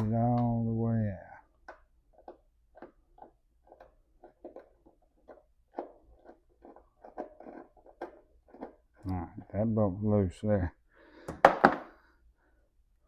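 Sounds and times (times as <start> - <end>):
hand tool clicking and scraping: 1.7 - 9.2.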